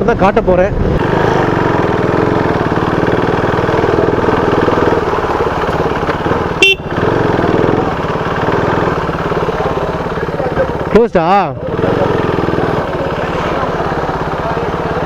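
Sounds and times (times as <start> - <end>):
motorcycle engine running: 0.8 - 15.0
horn toot: 6.4 - 7.9.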